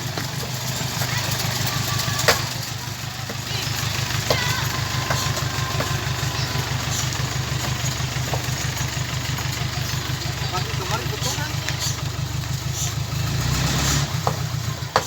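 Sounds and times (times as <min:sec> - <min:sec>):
engine idling: 0:00.0 - 0:15.0
sharp knocks: 0:14.2 - 0:15.0.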